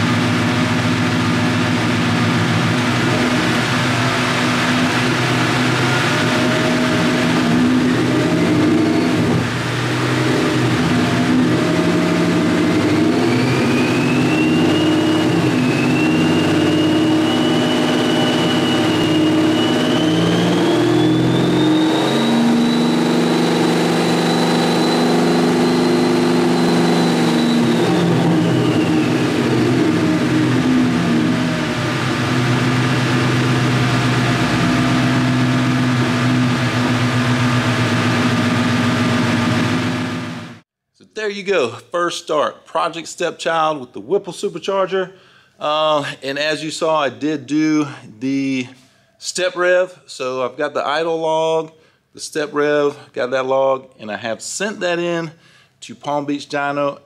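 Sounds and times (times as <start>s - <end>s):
car engine revving: 0.0s - 40.6s
supercharger whine: 0.0s - 40.6s.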